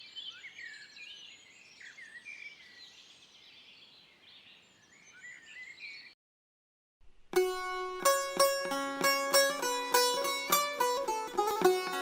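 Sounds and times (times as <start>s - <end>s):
small birds chirping: 0.0s - 6.2s
low steady outdoor hiss: 7.0s - 12.0s.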